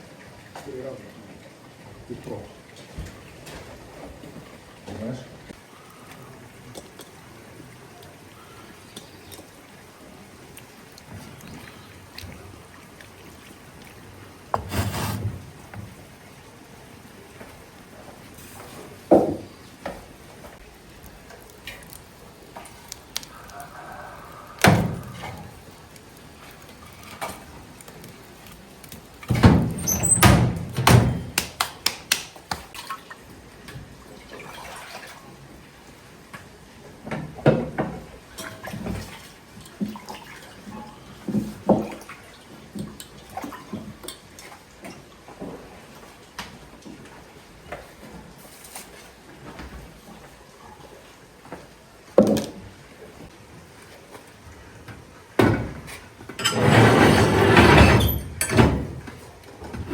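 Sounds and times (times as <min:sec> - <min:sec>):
knocks and clatter of objects: 0:29.2 - 0:32.2.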